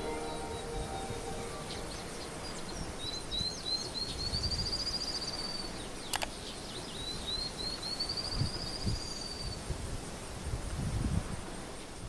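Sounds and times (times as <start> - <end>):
songbird singing high notes: 0.0 - 3.7
steady background hiss: 0.0 - 12.0
sharp click: 6.1 - 6.3.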